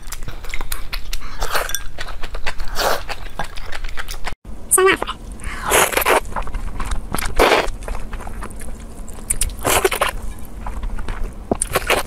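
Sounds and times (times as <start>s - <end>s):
person slurping noodles: 7.4s - 7.7s.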